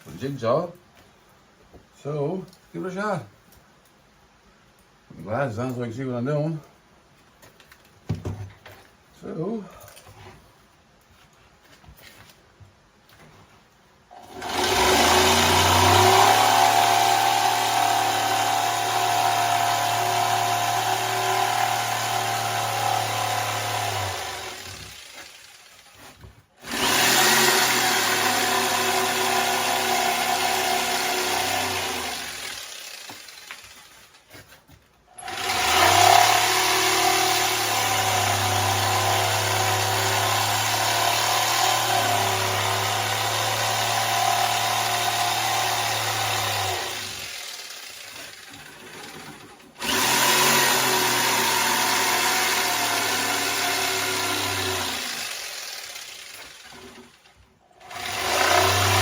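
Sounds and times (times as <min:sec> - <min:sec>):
electric jigsaw cutting wood: 0:14.1 - 0:34.2, 0:35.2 - 0:59.0.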